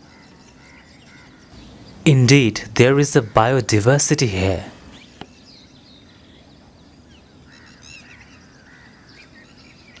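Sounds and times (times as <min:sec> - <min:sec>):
bird chirps: 0:00.1 - 0:10.0
low outdoor rumble: 0:01.6 - 0:05.1.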